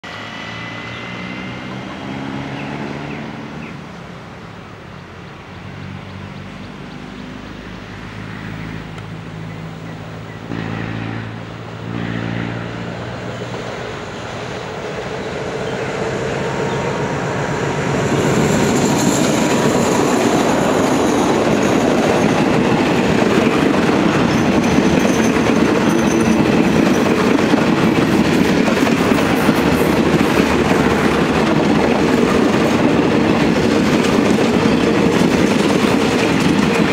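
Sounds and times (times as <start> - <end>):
wheels clattering on rails: 17.7 - 36.9.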